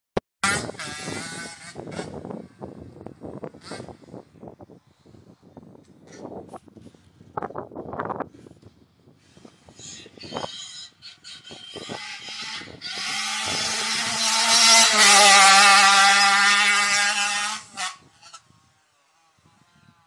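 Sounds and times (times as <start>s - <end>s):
motorbike engine at high revs: 0.4s - 4.2s, 11.4s - 20.0s.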